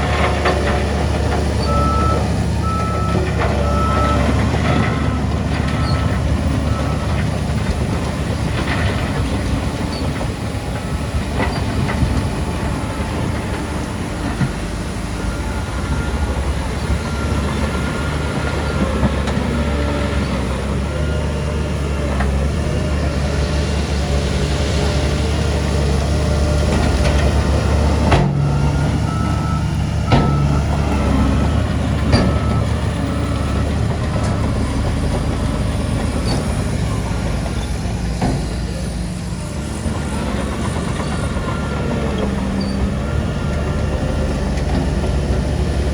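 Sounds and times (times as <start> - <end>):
diesel machinery engine drone: 0.0 - 45.9
reversing alarm beeping: 1.5 - 7.4, 10.9 - 21.9, 27.6 - 37.0.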